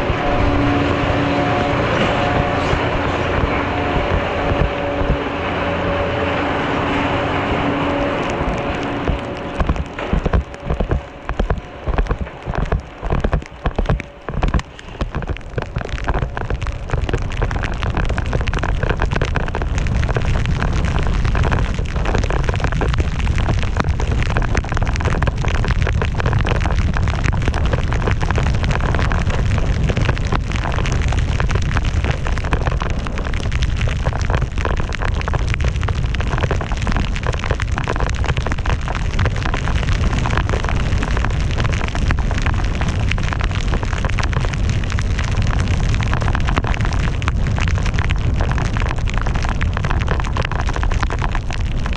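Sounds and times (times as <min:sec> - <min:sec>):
wind buffeting microphone: 0:00.0 - 0:34.7.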